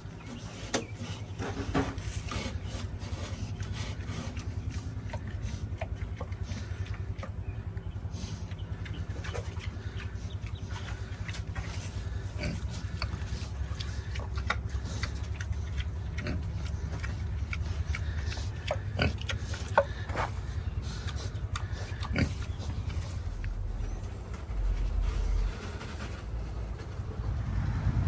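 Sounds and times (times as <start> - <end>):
pigs grunting: 0.0 - 28.0
steady low hum: 0.0 - 28.0.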